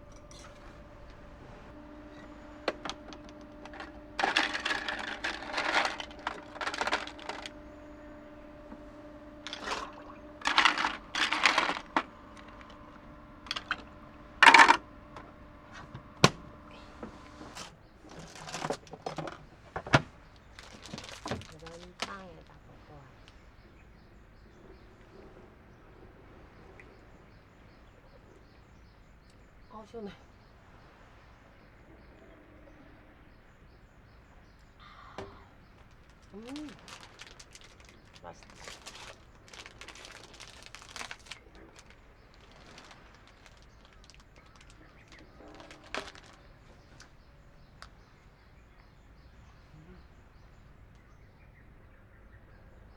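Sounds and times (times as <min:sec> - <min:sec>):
crinkling and crackling clicks: 0:00.0 - 0:23.4, 0:35.7 - 0:48.0
faint steady hum: 0:00.0 - 0:52.9.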